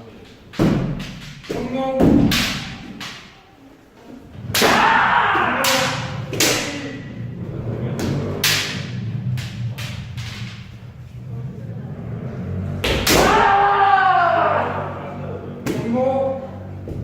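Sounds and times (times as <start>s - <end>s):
bamboo sword strikes: 0.5s - 3.4s, 4.4s - 7.0s, 8.0s - 10.4s, 12.8s - 13.6s
person shouting: 4.6s - 6.2s, 13.2s - 15.1s.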